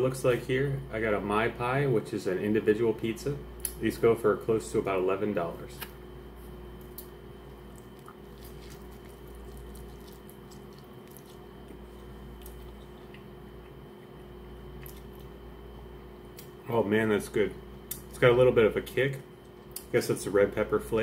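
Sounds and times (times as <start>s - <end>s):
steady low hum: 0.0s - 21.0s
person chewing: 6.8s - 13.8s, 14.7s - 15.4s.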